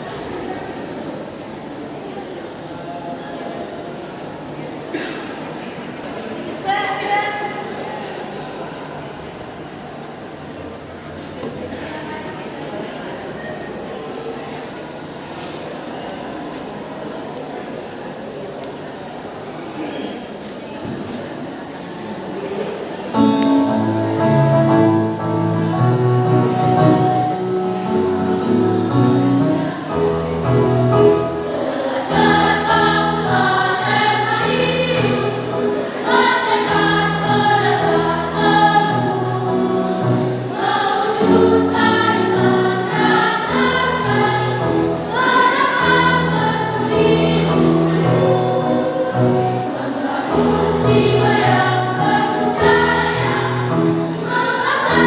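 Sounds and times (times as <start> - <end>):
children's choir singing: 4.9 - 9.2, 18.8 - 55.0
low instrumental accompaniment: 23.2 - 31.6.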